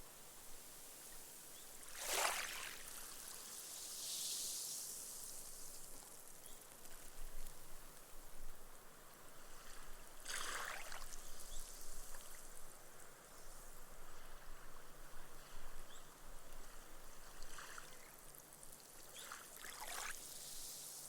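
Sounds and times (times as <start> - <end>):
steady hiss: 0.0 - 10.2, 11.1 - 21.0
small waves washing on sand: 1.8 - 6.2, 16.6 - 21.0.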